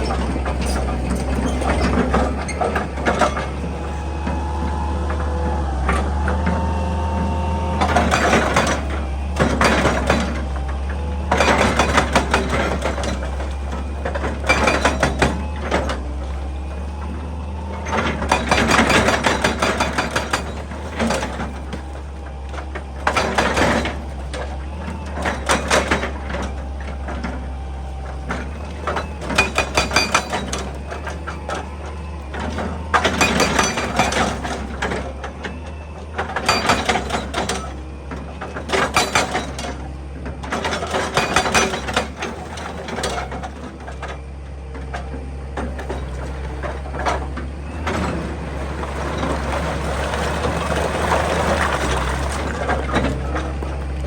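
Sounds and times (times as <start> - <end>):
excavator diesel engine running: 0.0 - 54.0
bucket crunching rock and earth: 45.4 - 54.0.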